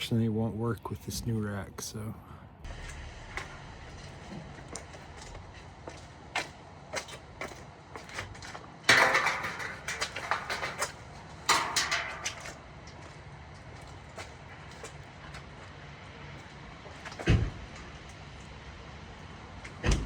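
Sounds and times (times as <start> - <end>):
metal clatter bursts: 2.7 - 15.7
metal clanking and rattling: 2.7 - 20.0.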